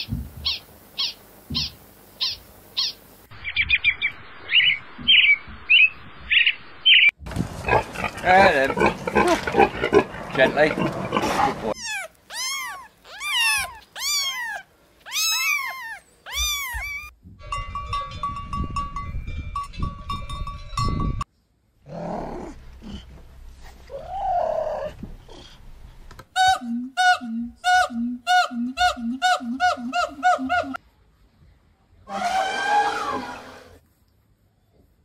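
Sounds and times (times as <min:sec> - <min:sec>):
kittens mewing: 0:11.7 - 0:17.1
lion cub calling: 0:11.7 - 0:17.1.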